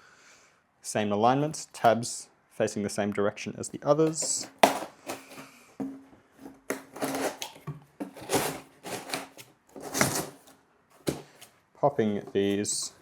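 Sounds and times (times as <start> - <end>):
cardboard scraping: 4.1 - 11.5.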